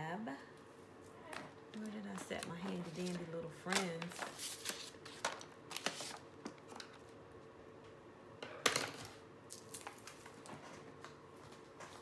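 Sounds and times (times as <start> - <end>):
paper rustling and tapping: 1.8 - 7.0.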